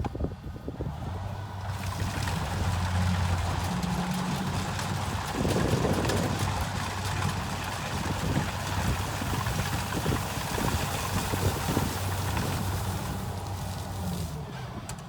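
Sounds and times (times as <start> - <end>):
combine harvester diesel engine: 0.0 - 15.0.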